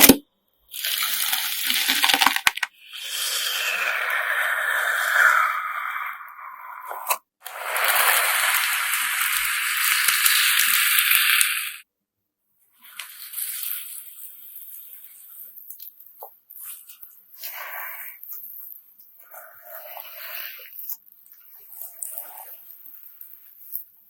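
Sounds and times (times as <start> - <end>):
grainy slime crunching: 0.7 - 2.7.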